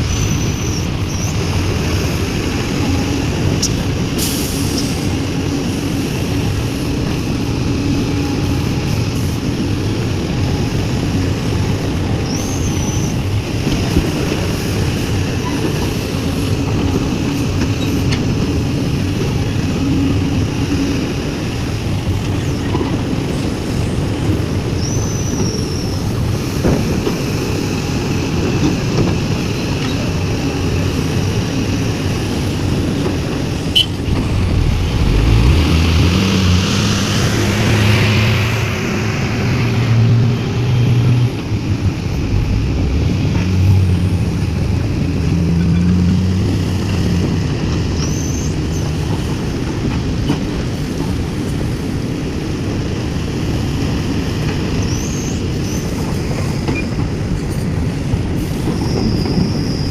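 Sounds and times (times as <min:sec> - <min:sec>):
excavator diesel engine running: 0:27.3 - 0:48.3.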